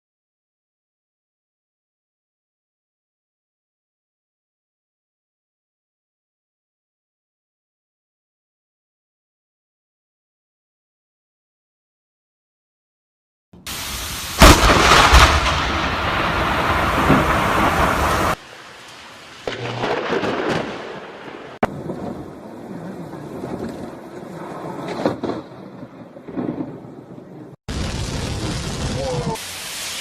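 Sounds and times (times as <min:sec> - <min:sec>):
rain: 0:13.6 - 0:30.0
thunder rumbling: 0:13.7 - 0:18.6, 0:19.4 - 0:29.4
loud thunder crack: 0:14.3 - 0:18.4, 0:19.4 - 0:29.4.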